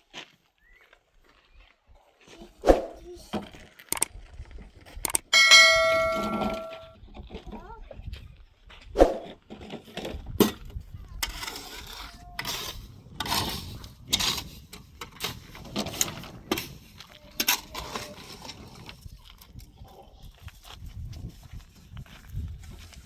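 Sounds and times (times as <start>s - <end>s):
hard objects knocking and clinking: 5.2s - 6.9s.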